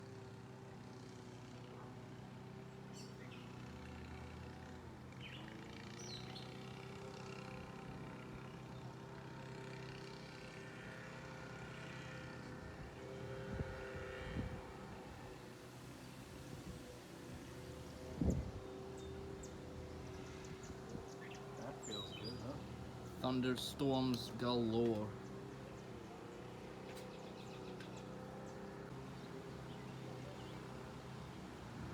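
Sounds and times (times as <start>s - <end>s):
steady mechanical hum: 10.4s - 31.9s
bird chirps: 20.2s - 23.2s.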